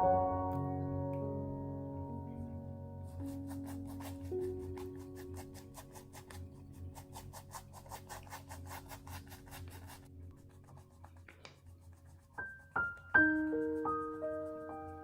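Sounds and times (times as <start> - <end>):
pencil scratching on paper: 3.1 - 15.0.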